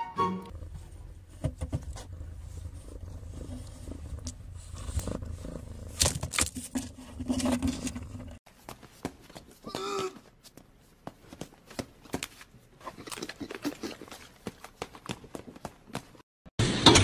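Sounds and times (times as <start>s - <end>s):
cat purring: 0.5s - 8.4s.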